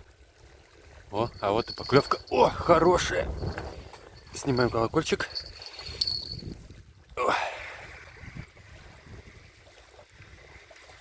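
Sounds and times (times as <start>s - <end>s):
small waves lapping: 0.0s - 11.0s
wind buffeting microphone: 0.9s - 7.2s, 7.8s - 11.0s
fishing rod bite bell ringing: 1.2s - 6.6s.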